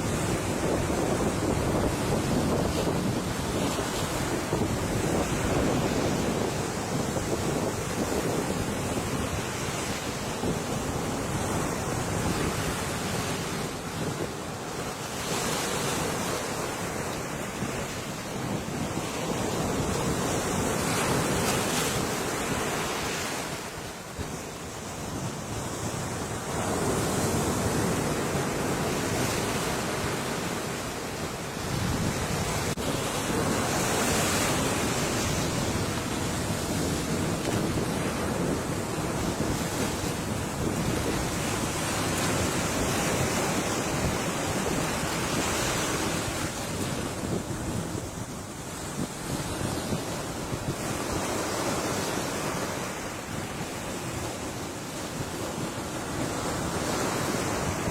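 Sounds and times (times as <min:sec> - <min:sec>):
waves breaking on shore: 0:00.0 - 0:57.9.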